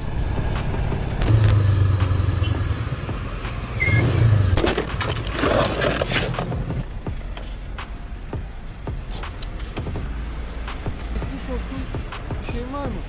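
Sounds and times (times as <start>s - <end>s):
vehicle engine hum: 0.0s - 13.0s
scraping crunching clatter: 4.5s - 6.8s.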